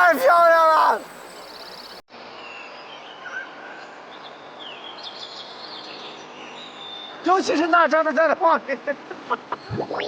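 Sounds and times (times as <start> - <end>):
birds chirping and whistling: 0.0 - 3.4.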